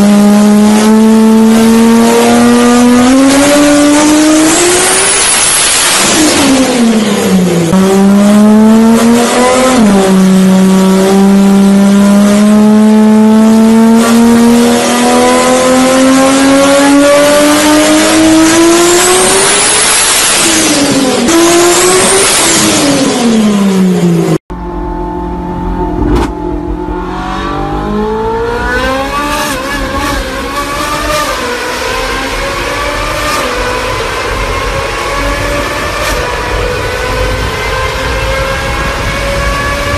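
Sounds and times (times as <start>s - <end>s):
car engine accelerating hard: 0.0s - 39.9s
second car engine revving: 20.6s - 39.9s.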